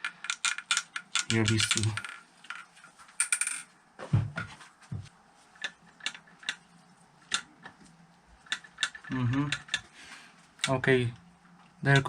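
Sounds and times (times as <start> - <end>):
metal parts clinking: 0.0 - 3.7.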